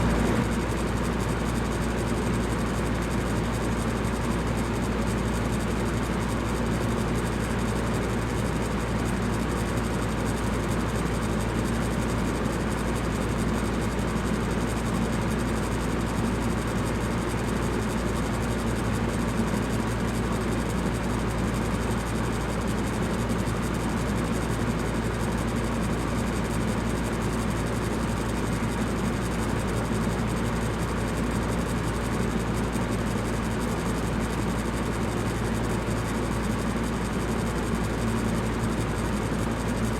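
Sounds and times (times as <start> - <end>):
fan air rush: 0.0 - 0.9
fan motor hum: 0.0 - 39.9.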